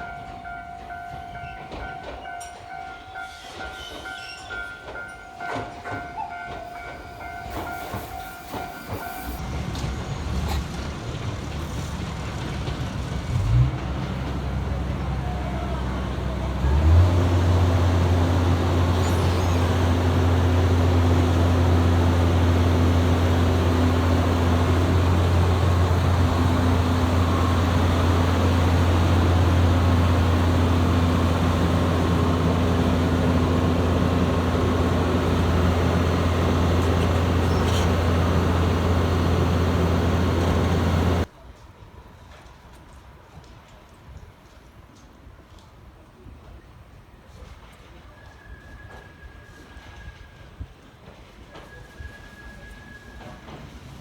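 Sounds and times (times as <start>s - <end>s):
diesel engine low drone: 9.4s - 41.3s.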